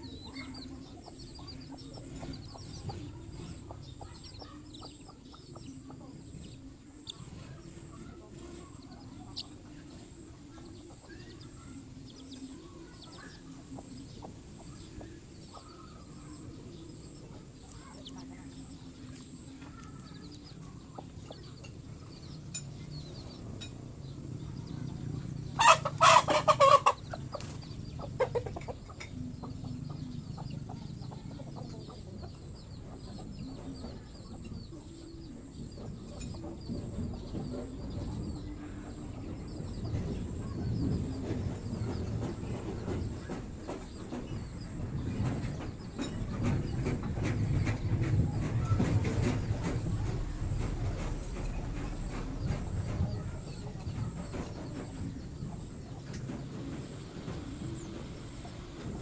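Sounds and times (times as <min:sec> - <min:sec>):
chicken calling: 0:25.6 - 0:27.2.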